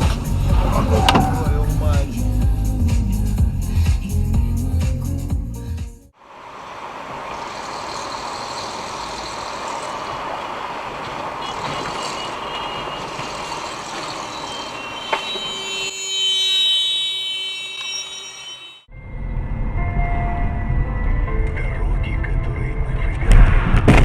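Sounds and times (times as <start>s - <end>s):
road and traffic noise: 0.0s - 2.2s, 6.2s - 15.8s
high-pitched steady tone: 12.0s - 18.9s.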